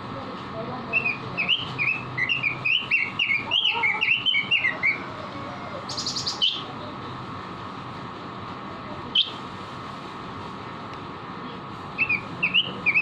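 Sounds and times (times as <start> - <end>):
bird high rapid trill: 0.9 - 5.0, 5.9 - 6.7
bird whistled chirps: 1.0 - 5.0, 5.9 - 6.7, 12.0 - 13.0.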